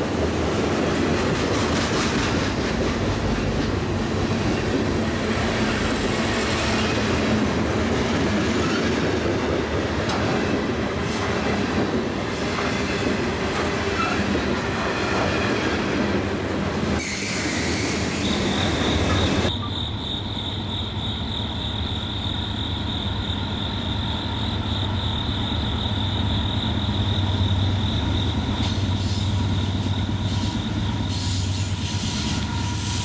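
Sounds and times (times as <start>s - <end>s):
freight cars rolling on rails: 0.0s - 19.7s
insects chirping: 17.6s - 33.0s.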